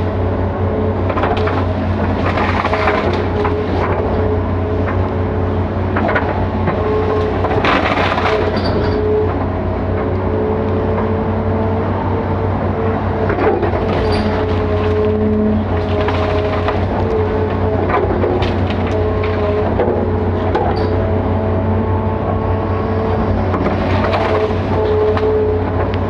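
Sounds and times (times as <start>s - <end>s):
excavator engine drone with whine: 0.0s - 26.0s
knocks and cracks: 1.1s - 4.0s, 5.9s - 9.0s, 13.3s - 20.8s, 23.5s - 26.0s.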